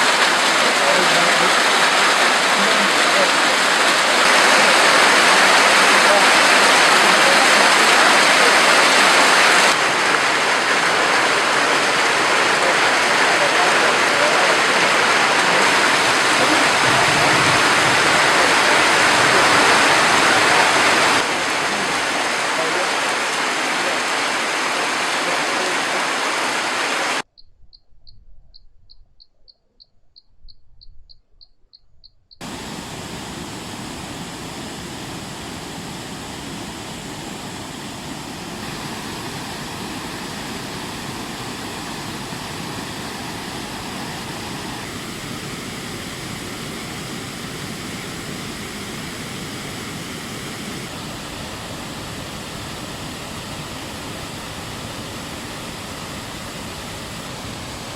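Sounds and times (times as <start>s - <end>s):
water rushing down a stream: 0.0s - 27.2s, 32.4s - 57.9s
faint high chirping: 27.3s - 32.4s.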